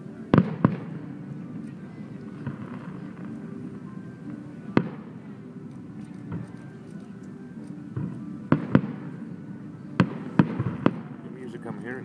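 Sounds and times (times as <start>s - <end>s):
fireworks bursting: 0.0s - 5.2s, 8.0s - 9.2s, 10.0s - 11.8s
faint music: 0.0s - 12.0s.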